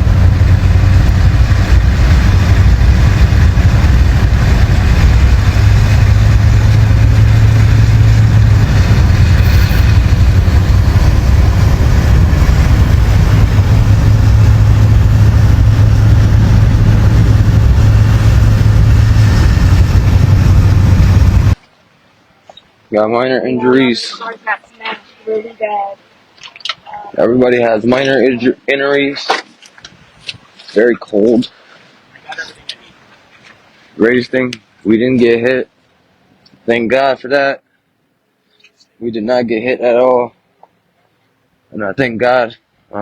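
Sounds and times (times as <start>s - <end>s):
vehicle engine and road rumble: 0.0s - 21.7s.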